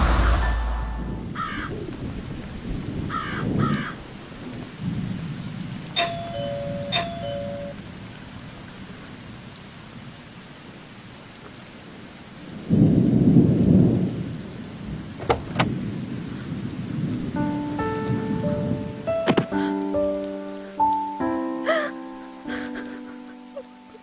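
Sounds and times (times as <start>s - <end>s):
low rumble of thunder: 0.0s - 7.0s, 11.8s - 19.4s
rain falling steadily: 1.1s - 24.0s
soft music notes: 17.4s - 24.0s.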